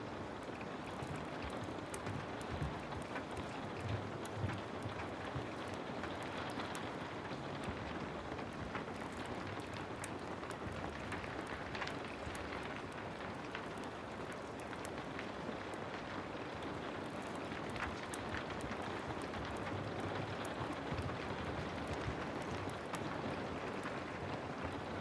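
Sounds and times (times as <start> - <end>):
heavy rain falling: 0.2 - 25.0
sharp crackles: 0.2 - 25.0.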